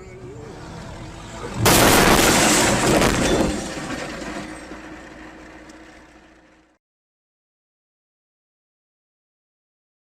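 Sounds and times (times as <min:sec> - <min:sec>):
vehicle collision crunching: 0:01.4 - 0:06.7
glass breaking: 0:01.6 - 0:04.8.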